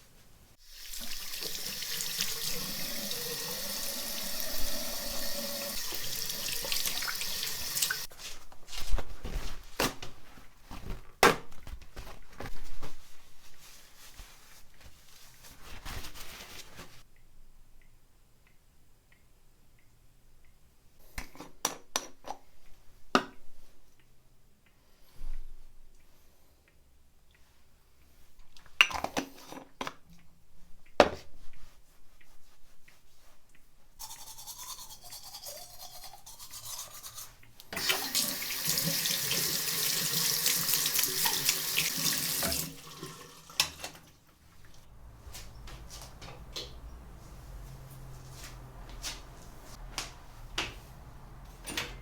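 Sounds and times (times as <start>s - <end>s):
water running from a tap: 0.6s - 8.1s, 34.0s - 37.2s, 37.8s - 44.0s.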